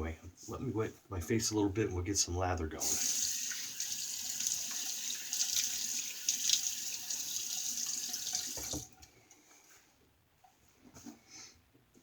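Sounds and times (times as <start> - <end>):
tap running into a sink: 2.8 - 9.0.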